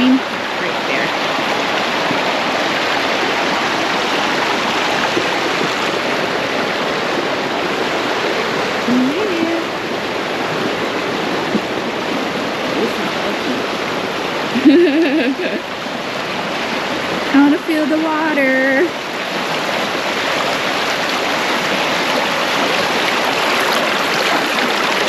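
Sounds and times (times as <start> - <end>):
person speaking: 0.0 - 1.1, 8.9 - 9.7, 17.3 - 18.9
stream rushing over rocks: 0.0 - 25.0.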